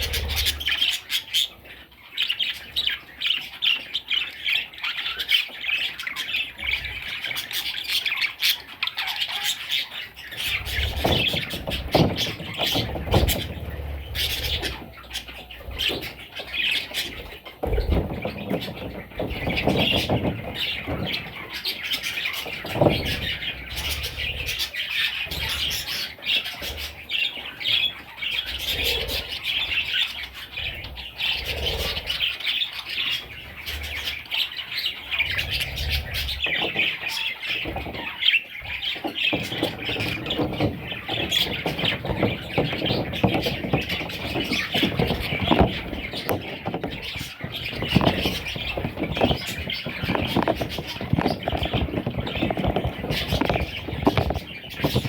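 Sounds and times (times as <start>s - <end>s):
budgerigar chicks chirping: 0.0s - 55.0s
low bumps and rustling: 10.3s - 24.7s, 35.2s - 55.0s.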